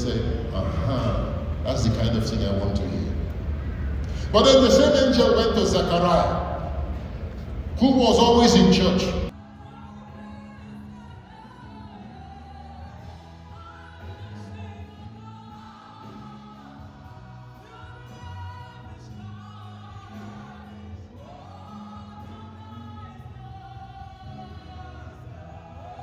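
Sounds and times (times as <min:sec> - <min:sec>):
choir singing: 0:07.9 - 0:26.0.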